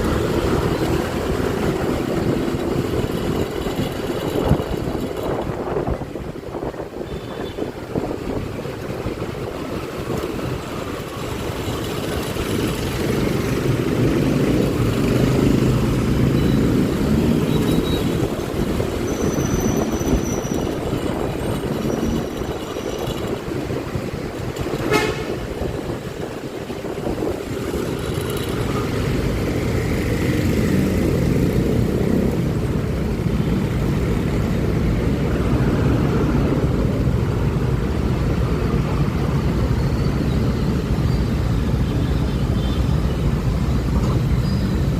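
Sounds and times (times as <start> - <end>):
wind on microphone: 18.0 - 39.7
vehicle horns tooting: 24.8 - 25.5.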